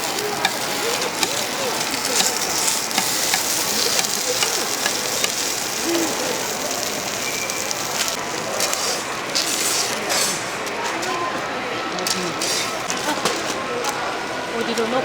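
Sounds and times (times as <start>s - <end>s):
batter sizzling on a griddle: 0.0s - 11.0s
small crackles: 0.0s - 11.2s
faint voices: 0.0s - 15.0s.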